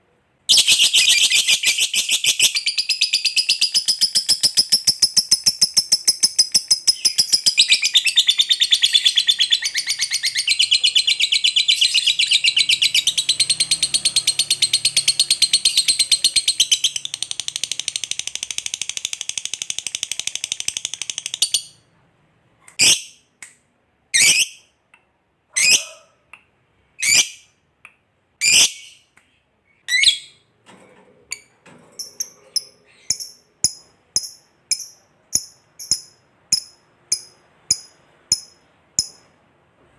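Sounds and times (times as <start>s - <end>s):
sharp bird chirps: 0.5s - 21.9s, 32.0s - 39.3s
lovebird chattering: 32.0s - 39.2s.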